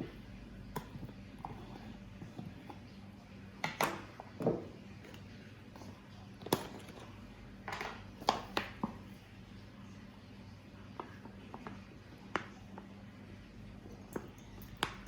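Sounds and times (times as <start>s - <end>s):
objects knocking and clicking: 3.6s - 9.0s.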